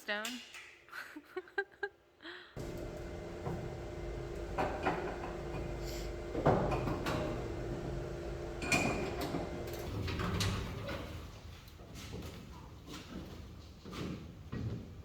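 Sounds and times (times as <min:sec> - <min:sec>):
steady hum: 0:02.6 - 0:10.8
sharp knocks and clanks: 0:02.6 - 0:11.1.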